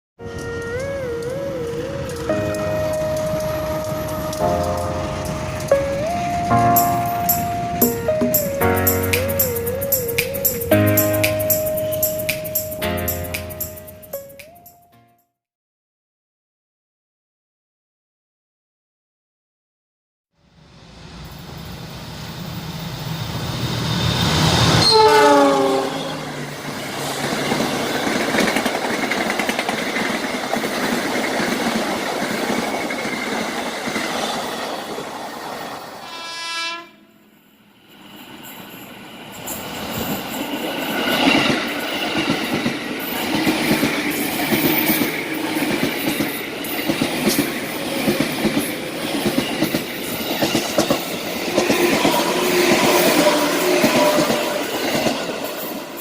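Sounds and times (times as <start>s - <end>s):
train wheels rushing on rail: 20.9s - 36.2s, 37.9s - 56.0s
train horn blast: 24.8s - 26.5s, 36.0s - 37.2s, 51.5s - 54.8s
wheels clacking over rail joints: 26.6s - 35.6s.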